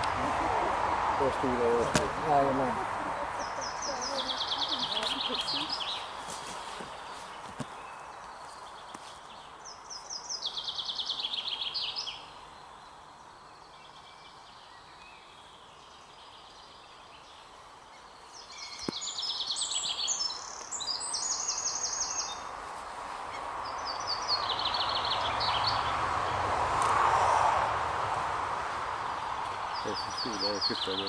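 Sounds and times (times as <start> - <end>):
outdoor background hiss: 0.0 - 31.0
songbird trilling: 3.2 - 6.2, 17.9 - 22.5.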